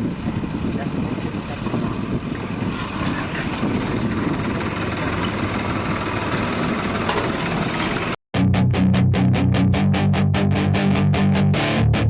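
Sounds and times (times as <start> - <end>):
diesel engine running: 0.0 - 8.2
guitar music with beat: 8.3 - 12.0.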